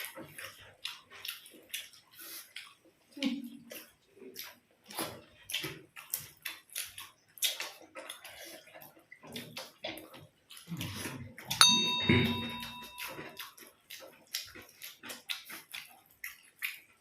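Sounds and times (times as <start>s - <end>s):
wet chewing sounds: 0.0s - 11.5s, 13.6s - 17.0s
dish clinking: 11.6s - 13.2s.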